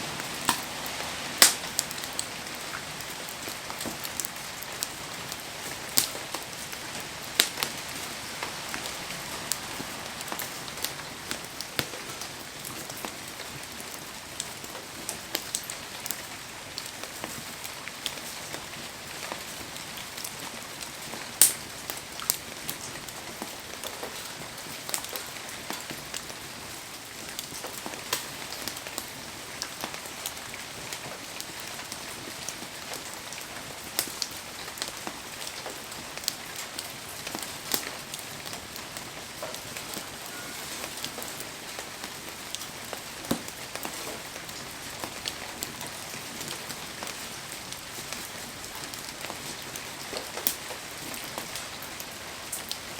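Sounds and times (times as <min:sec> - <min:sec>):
heavy rain falling: 0:00.0 - 0:52.9
sharp ticks and pops: 0:01.4 - 0:01.6.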